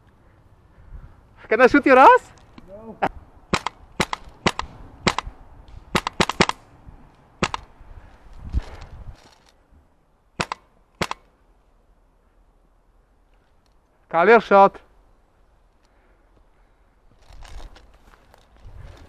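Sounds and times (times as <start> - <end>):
airsoft rifle shots: 3.5 - 5.3, 5.9 - 6.6, 7.4 - 7.7, 10.4 - 11.3.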